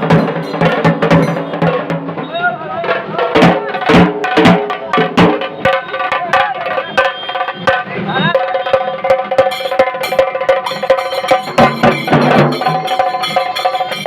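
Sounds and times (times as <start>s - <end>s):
fast sharp drum strokes: 0.0s - 14.0s
pitched melody: 8.3s - 14.0s.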